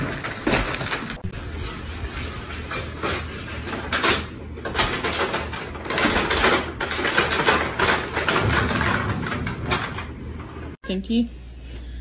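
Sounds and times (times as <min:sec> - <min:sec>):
paper bag crinkling on floor: 0:00.0 - 0:01.3.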